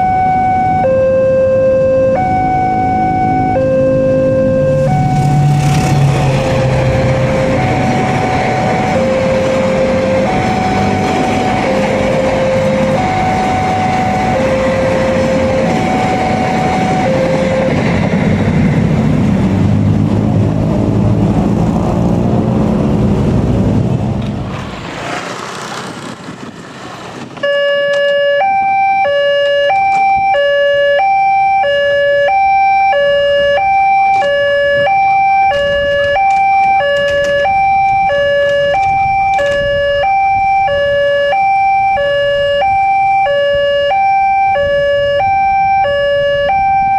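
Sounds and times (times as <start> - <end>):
level crossing alarm alternating tones: 0.0 - 19.2, 27.4 - 46.9
train passing with heavy rumble: 2.7 - 27.5.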